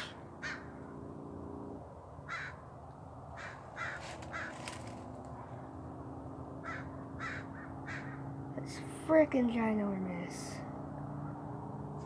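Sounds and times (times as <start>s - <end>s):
faint bird calls: 2.2s - 2.6s, 3.4s - 4.9s, 6.6s - 8.3s.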